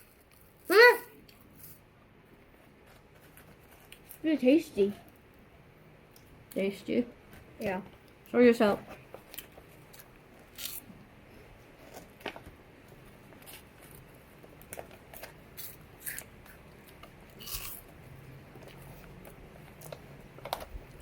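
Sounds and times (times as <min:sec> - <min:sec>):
crunchy snack being chewed: 0:09.2 - 0:10.9, 0:13.3 - 0:21.0.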